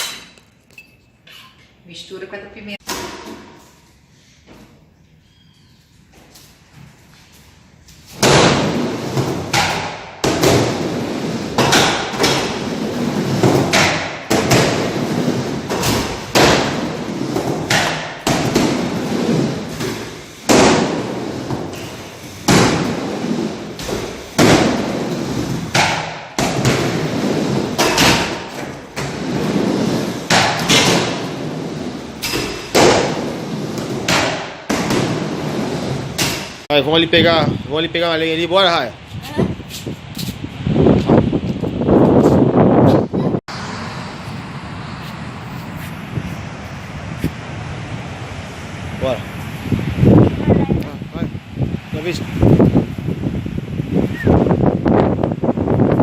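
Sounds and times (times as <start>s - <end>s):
loud thumps and knocks: 8.2s - 21.8s, 22.4s - 31.4s.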